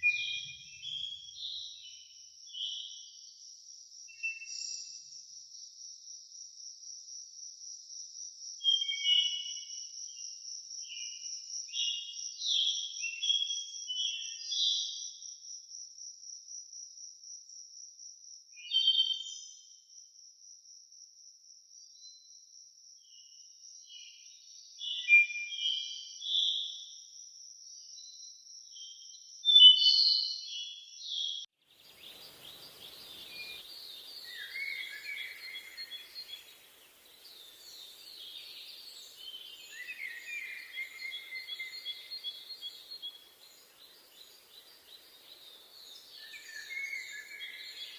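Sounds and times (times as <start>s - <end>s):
songbird singing: 0.0s - 5.8s, 8.6s - 15.2s, 23.0s - 26.8s, 27.8s - 47.9s
bird calls: 31.2s - 47.9s
high insect trill: 31.7s - 47.9s.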